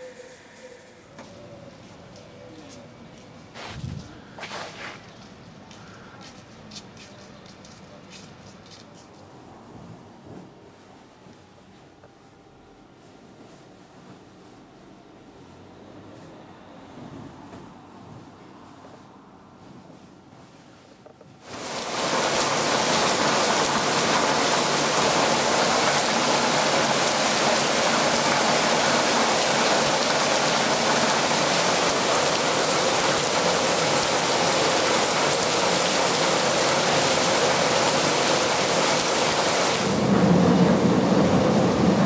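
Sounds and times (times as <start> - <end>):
heavy rain on table and deck: 21.4 - 42.0.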